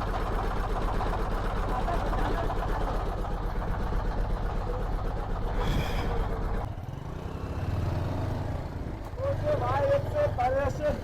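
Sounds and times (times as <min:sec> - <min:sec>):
motorcycle engine running: 0:00.0 - 0:11.0
road and wind noise: 0:05.4 - 0:11.0.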